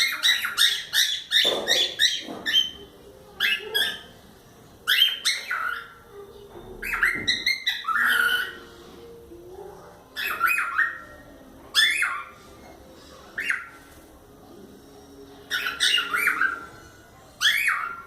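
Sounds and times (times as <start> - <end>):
cockatiels chirping: 0.0 - 4.2, 4.8 - 6.1, 6.7 - 8.8, 10.1 - 12.6, 13.3 - 14.0, 15.4 - 18.0.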